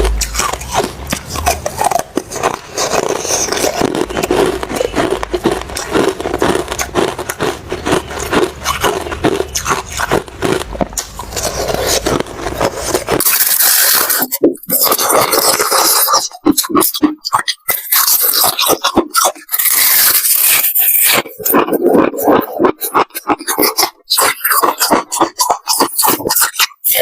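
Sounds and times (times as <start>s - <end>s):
ice crunching: 0.0s - 16.2s.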